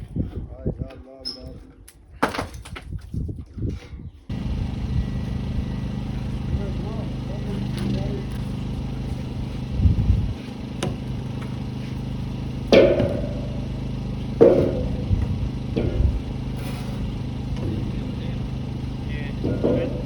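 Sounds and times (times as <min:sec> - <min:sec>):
engine running: 0:04.3 - 0:20.0
metal panels banging: 0:04.3 - 0:20.0.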